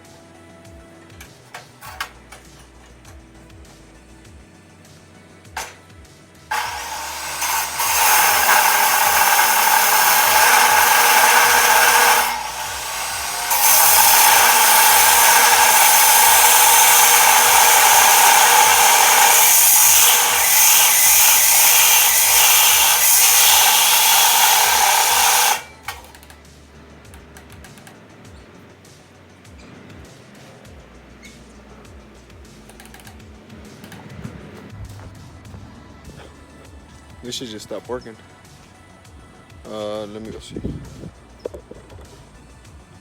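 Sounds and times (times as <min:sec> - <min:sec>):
power tool grinding metal: 0:06.5 - 0:26.2.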